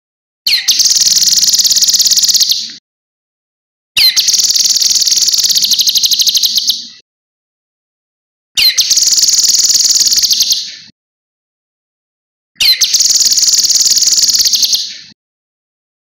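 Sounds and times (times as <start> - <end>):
bird rattling trills: 0.5 - 2.6, 4.0 - 6.8, 8.6 - 10.6, 12.6 - 14.9.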